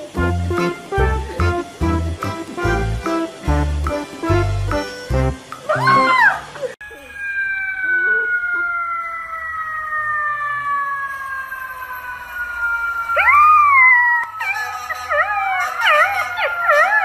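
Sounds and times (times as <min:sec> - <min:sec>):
puppy howling: 0:05.7 - 0:09.4, 0:13.1 - 0:17.0
siren wailing: 0:05.7 - 0:17.0.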